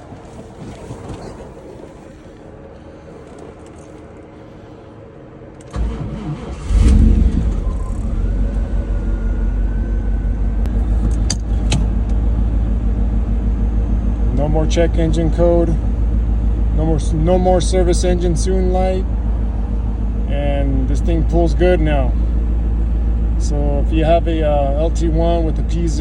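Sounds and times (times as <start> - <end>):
car engine idling: 0.0 - 26.0
car engine cranking and starting: 5.5 - 26.0.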